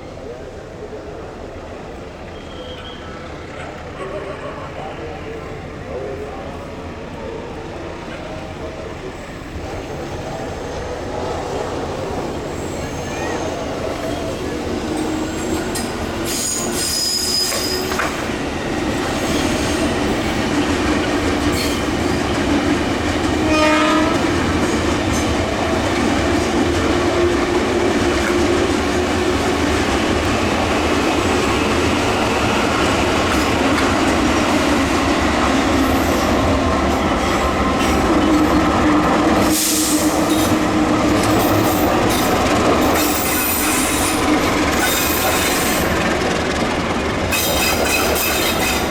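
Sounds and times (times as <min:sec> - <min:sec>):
train rumbling past: 0:00.0 - 0:48.9
train horn: 0:23.4 - 0:24.5.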